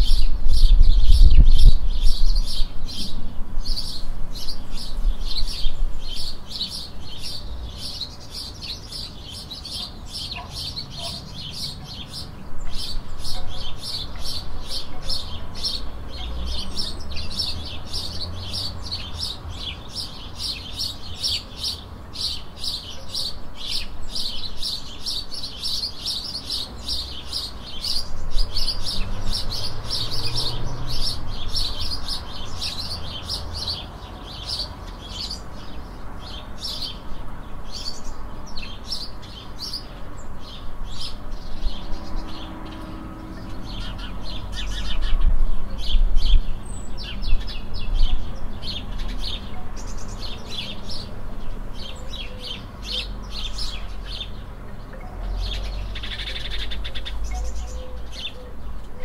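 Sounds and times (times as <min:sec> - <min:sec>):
low rumble: 0:00.0 - 0:04.4
songbirds chirping: 0:00.0 - 0:59.0.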